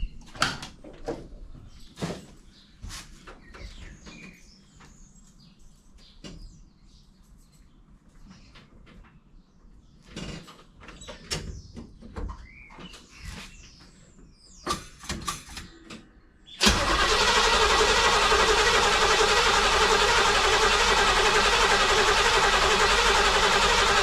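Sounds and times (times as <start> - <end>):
truck engine starting and running: 16.6 - 24.0.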